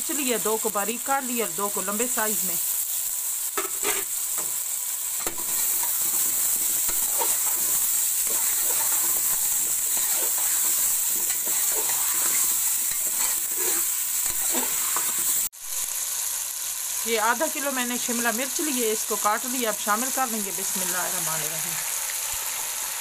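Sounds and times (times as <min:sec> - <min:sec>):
food sizzling in hot oil: 0:00.0 - 0:23.0
metal spoon scraping pot: 0:03.6 - 0:04.1, 0:05.2 - 0:15.5.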